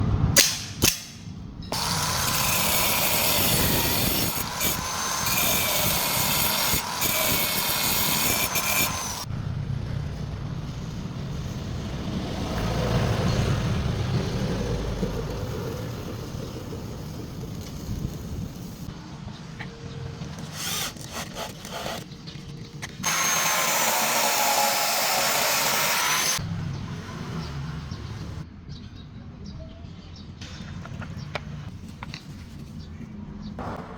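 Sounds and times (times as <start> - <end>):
small power tool whining: 1.7 - 9.3, 22.8 - 26.4
rubbing scraping sound: 20.3 - 23.0.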